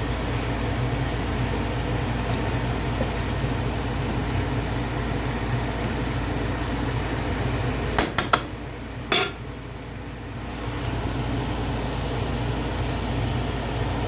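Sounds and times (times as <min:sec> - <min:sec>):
steady mechanical hum: 0:00.0 - 0:14.0
cookware clanking: 0:09.1 - 0:09.4.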